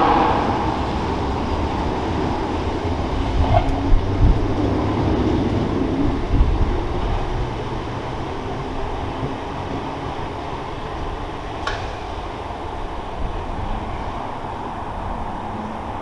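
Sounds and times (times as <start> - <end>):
low thumps: 0.0 - 4.4
electric train rumbling: 0.0 - 16.0.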